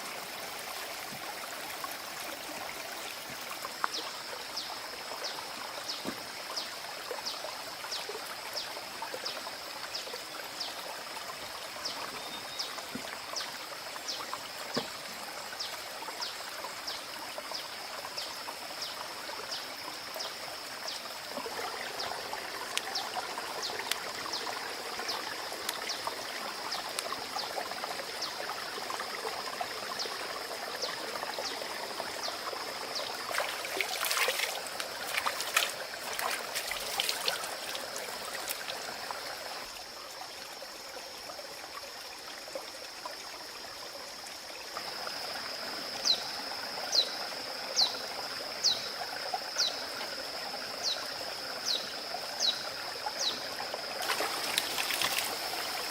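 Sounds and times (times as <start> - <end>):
water running and trickling: 0.0 - 55.9.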